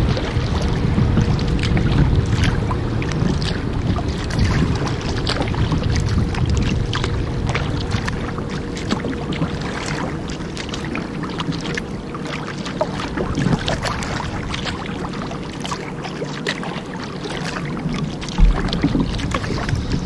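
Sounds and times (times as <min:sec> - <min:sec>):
paddle blades splashing: 0:00.0 - 0:20.0
water lapping against hull: 0:00.0 - 0:20.0
low thump: 0:18.3 - 0:20.0.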